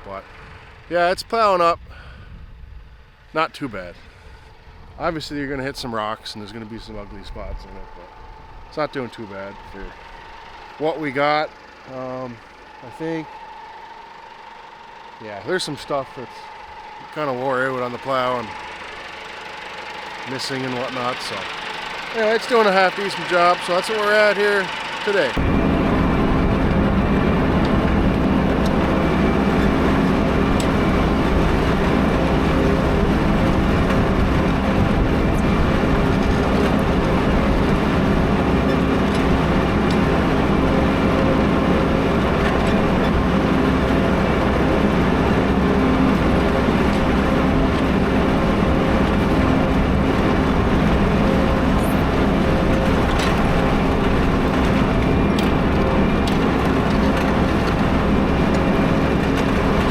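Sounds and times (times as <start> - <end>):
tractor engine under load: 3.0 - 59.9.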